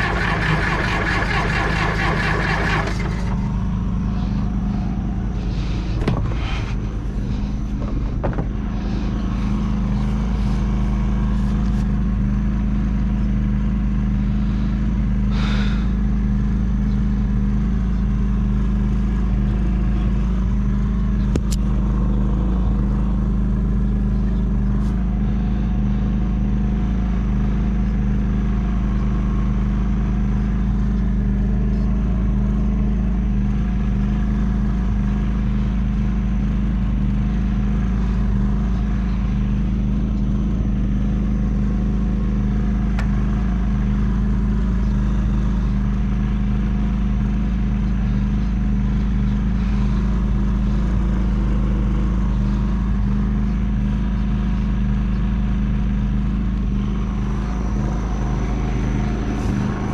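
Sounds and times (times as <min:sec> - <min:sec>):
dozer diesel engine running: 0:00.0 - 0:59.9.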